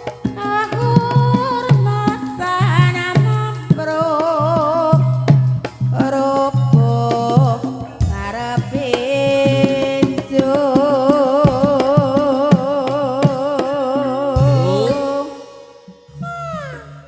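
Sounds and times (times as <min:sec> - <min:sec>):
drum strokes: 0:00.0 - 0:17.0
person singing with vibrato: 0:00.0 - 0:17.0
gamelan music: 0:14.4 - 0:17.0.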